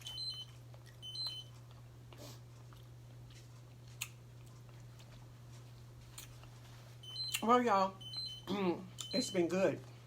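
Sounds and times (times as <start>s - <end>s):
chewing and eating: 0.0s - 7.4s.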